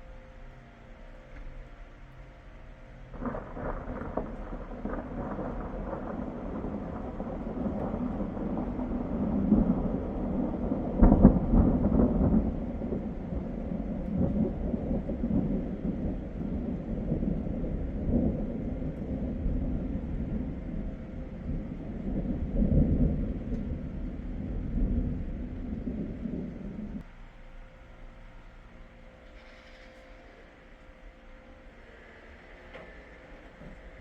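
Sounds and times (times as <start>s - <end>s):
thunder rolling and crashing: 3.1s - 27.0s.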